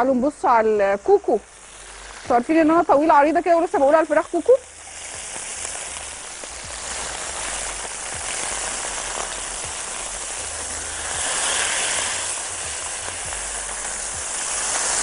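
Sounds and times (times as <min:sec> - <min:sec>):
chicken sizzling on grill pan: 0:00.0 - 0:15.0.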